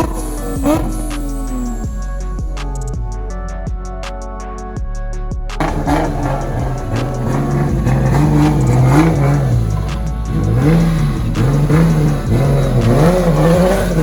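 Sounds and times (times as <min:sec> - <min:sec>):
car engine revving: 0:00.0 - 0:02.0, 0:05.6 - 0:14.0
music: 0:00.0 - 0:14.0.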